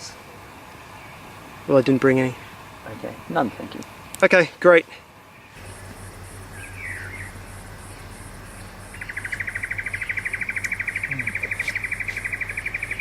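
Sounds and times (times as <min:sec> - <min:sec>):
falling chirp: 0:05.5 - 0:13.0
insect trilling: 0:05.6 - 0:13.0.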